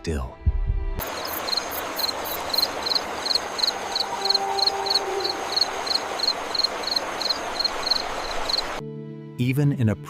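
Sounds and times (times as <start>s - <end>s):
cricket chirping: 1.0s - 8.8s
night ambience hiss: 1.0s - 8.8s.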